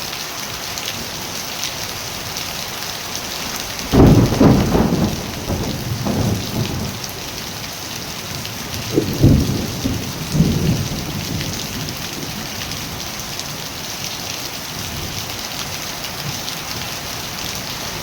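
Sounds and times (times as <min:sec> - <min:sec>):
steady rain falling: 0:00.0 - 0:18.0
thunder rumbling: 0:03.8 - 0:07.6, 0:08.4 - 0:13.1.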